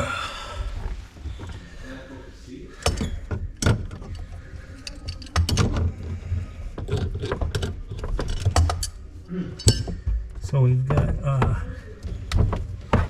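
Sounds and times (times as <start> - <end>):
objects knocking and clicking: 2.8 - 9.0, 9.6 - 13.0.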